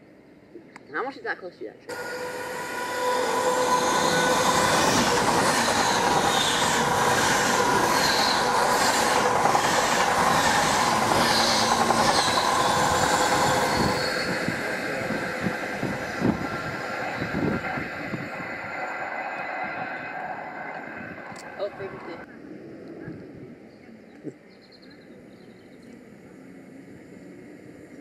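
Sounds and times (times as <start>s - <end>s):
train rushing past: 1.9s - 23.7s
wheels clattering on rails: 3.3s - 22.2s.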